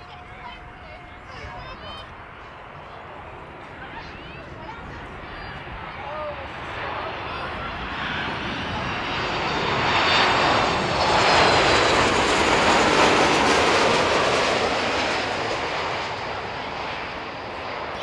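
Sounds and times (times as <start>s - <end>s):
jet airliner flying overhead: 0.0s - 18.0s.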